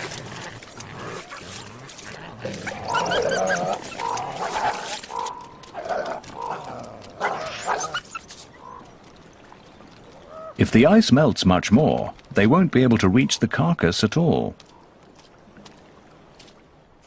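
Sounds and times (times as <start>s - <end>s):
coyotes snarling and yelping: 0.0s - 9.0s.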